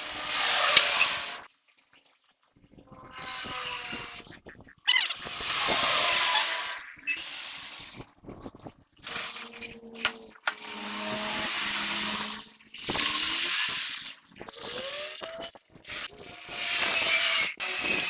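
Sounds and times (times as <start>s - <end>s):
power tool whirring: 0.0s - 1.4s, 5.2s - 8.0s, 9.1s - 15.0s.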